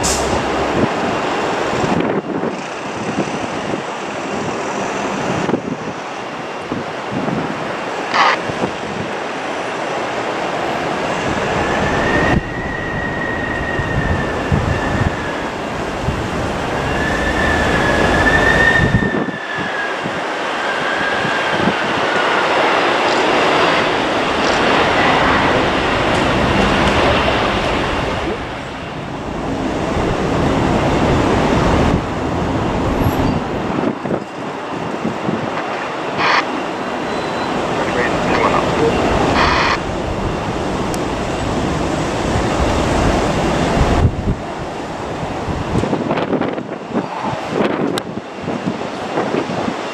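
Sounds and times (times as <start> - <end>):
jet engines rumbling and whining: 0.0 - 49.9.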